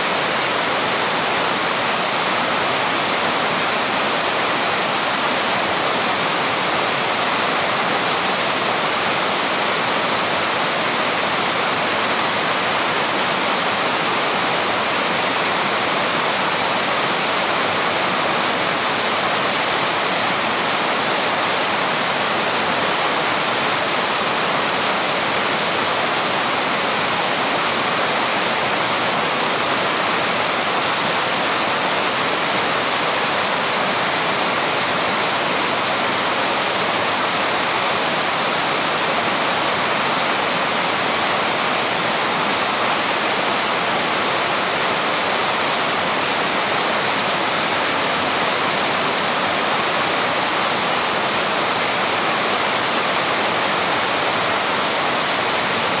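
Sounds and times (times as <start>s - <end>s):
small waterfall rushing: 0.0s - 56.0s.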